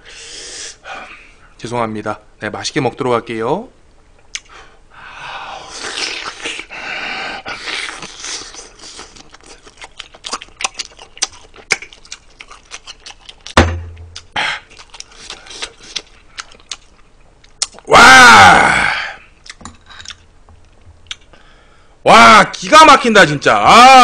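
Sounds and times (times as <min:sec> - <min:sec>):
mouth smacking and clicking: 0:04.3 - 0:04.6, 0:07.7 - 0:17.9, 0:21.0 - 0:21.4
wet chewing noises: 0:07.5 - 0:17.9
loud thump with low boom: 0:13.6 - 0:14.2.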